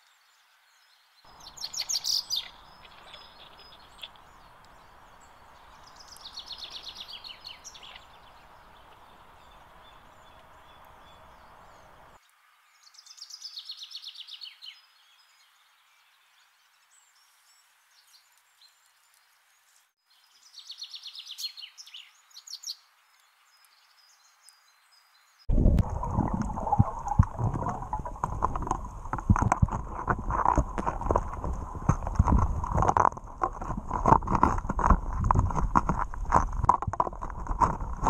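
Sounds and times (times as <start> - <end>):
songbird trills: 0.1 - 25.4.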